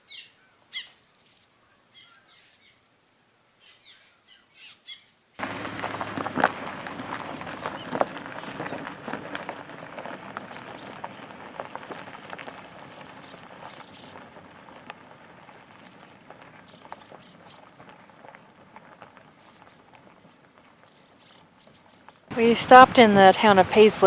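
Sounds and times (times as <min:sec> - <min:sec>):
many birds calling: 0:00.0 - 0:02.8, 0:03.6 - 0:08.9, 0:12.8 - 0:14.2, 0:15.7 - 0:18.1.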